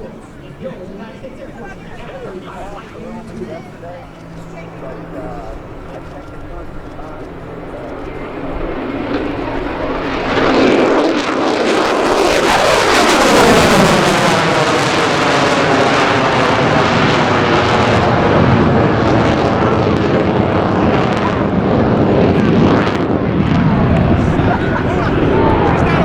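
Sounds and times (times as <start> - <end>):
fighter jet flying past: 0.0 - 26.0.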